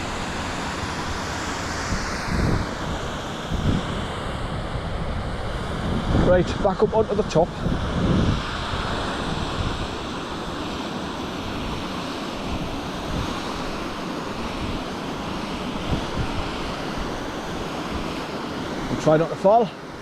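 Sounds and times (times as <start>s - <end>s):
wind buffeting microphone: 0.0s - 18.3s.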